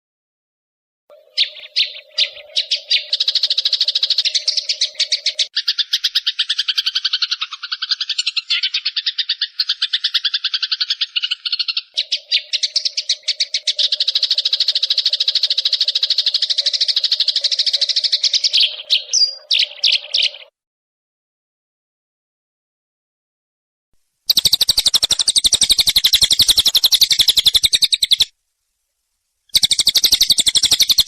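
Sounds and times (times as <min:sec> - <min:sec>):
sparrows chattering: 0:01.1 - 0:20.5, 0:24.3 - 0:28.3, 0:29.5 - 0:31.0
faint steady hum: 0:24.0 - 0:30.7.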